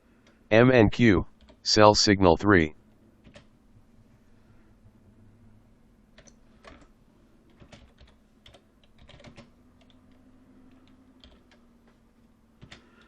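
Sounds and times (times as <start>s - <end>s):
keyboard typing: 3.2s - 3.5s, 6.2s - 6.9s, 7.5s - 12.0s, 12.6s - 12.9s.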